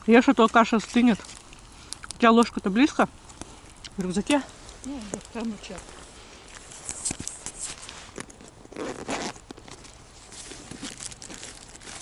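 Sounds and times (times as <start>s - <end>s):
rustling while rummaging: 4.1s - 12.0s
backpack zipper: 7.0s - 9.5s.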